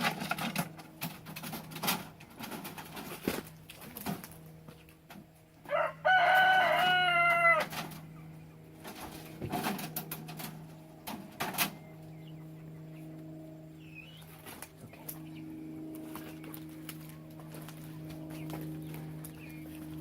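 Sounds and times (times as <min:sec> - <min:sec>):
rooster crowing: 0:05.6 - 0:07.8.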